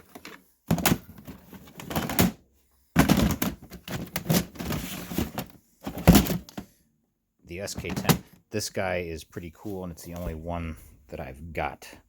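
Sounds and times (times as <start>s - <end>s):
plastic toys and bins clattering: 0.0s - 6.8s, 7.7s - 8.4s.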